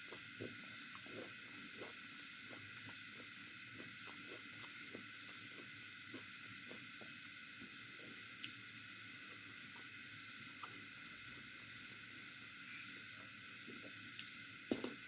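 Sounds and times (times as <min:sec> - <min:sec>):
faint eating clicks: 0:00.0 - 0:07.1, 0:08.0 - 0:08.7
crickets chirping: 0:00.0 - 0:15.0.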